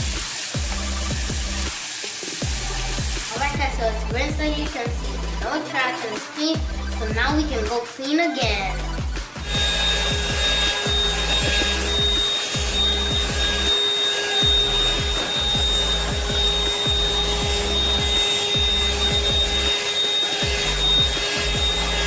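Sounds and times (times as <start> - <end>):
background music: 0.0 - 22.0
handheld vacuum whining: 9.4 - 22.0.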